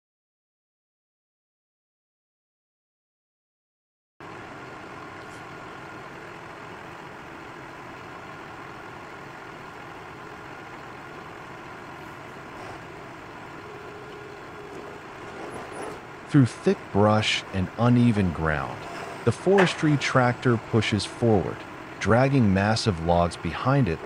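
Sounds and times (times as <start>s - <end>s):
heavy machine engine running: 4.2s - 24.0s.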